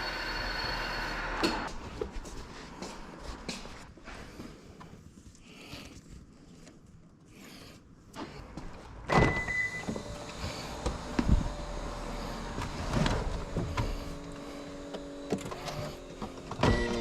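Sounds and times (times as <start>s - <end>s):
car engine starting and running: 0.0s - 1.7s, 8.1s - 17.0s.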